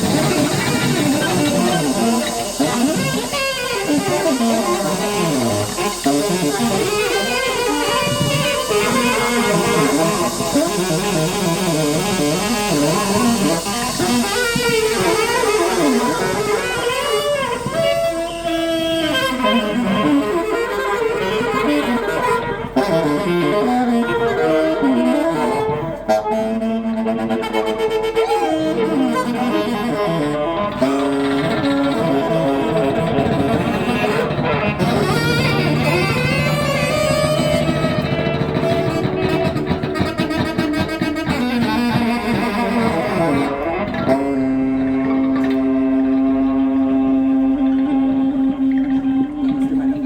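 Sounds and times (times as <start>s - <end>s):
instrumental music: 0.0s - 50.0s.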